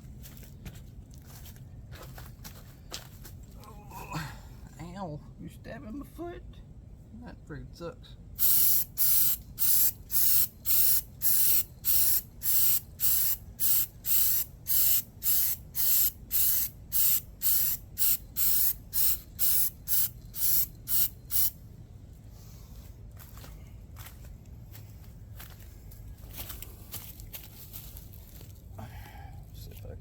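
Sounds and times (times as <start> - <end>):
aerosol spray can hissing: 8.4 - 21.6.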